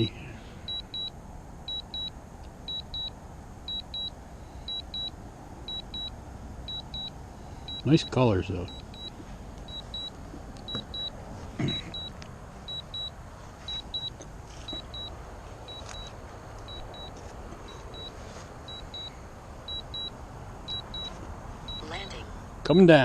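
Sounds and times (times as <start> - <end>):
remote controller high double beeps: 0.7 - 1.1, 1.7 - 2.1, 2.7 - 3.1, 3.7 - 4.1, 4.7 - 5.1, 5.7 - 6.1, 6.7 - 7.1, 7.7 - 10.1, 10.7 - 11.1, 11.7 - 13.1, 13.7 - 15.1, 17.7 - 19.1, 19.7 - 20.1, 20.7 - 21.1, 21.7 - 22.2.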